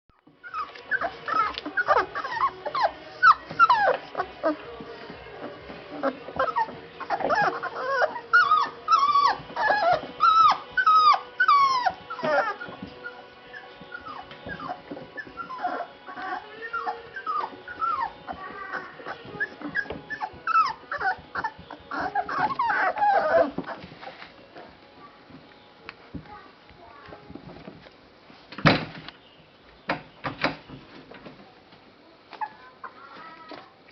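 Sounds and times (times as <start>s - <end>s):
puppies whimpering: 0.3s - 25.0s, 32.3s - 33.4s.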